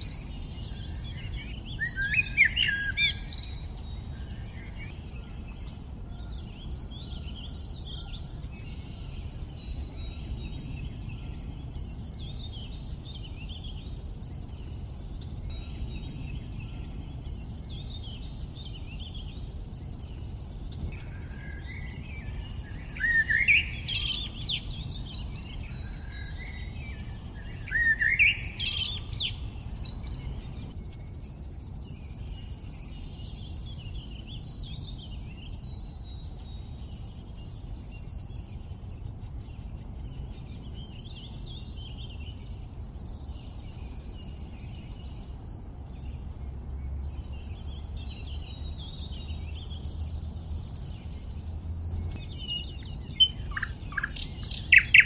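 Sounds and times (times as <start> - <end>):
low background rumble: 0.0 - 55.0
songbirds chirping: 0.0 - 55.0.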